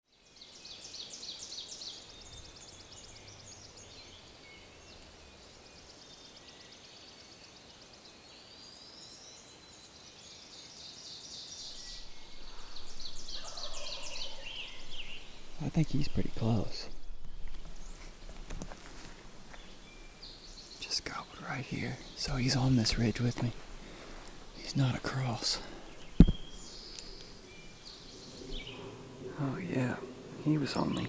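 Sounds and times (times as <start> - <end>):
songbirds singing: 0.1 - 31.0.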